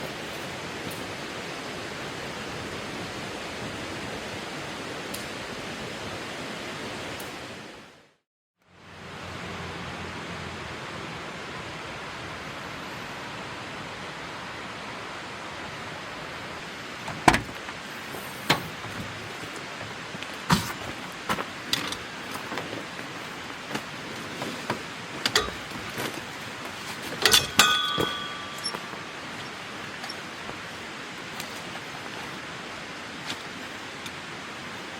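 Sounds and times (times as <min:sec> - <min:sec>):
steady hiss: 0:11.0 - 0:34.9
sharp clicks and knocks: 0:25.2 - 0:26.2, 0:27.2 - 0:30.2
short metallic ring: 0:25.3 - 0:25.8, 0:27.2 - 0:30.3.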